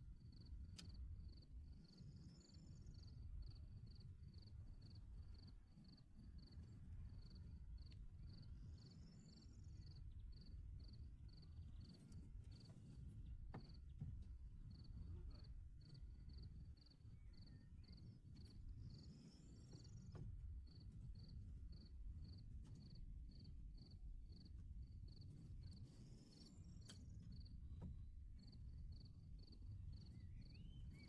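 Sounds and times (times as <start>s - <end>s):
cricket chirping: 0.2s - 12.7s, 14.6s - 31.0s
faint clicks: 0.7s - 1.0s, 26.8s - 27.5s.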